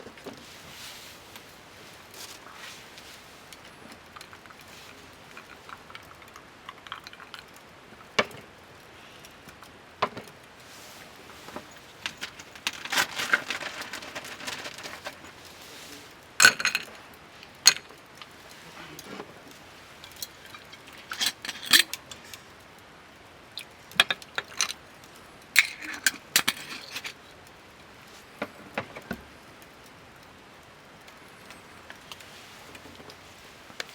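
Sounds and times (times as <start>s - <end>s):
rustling: 0.0s - 8.3s, 10.2s - 22.7s, 23.6s - 29.9s, 31.0s - 33.9s
small hard objects clicking: 1.4s - 15.6s, 23.5s - 27.6s.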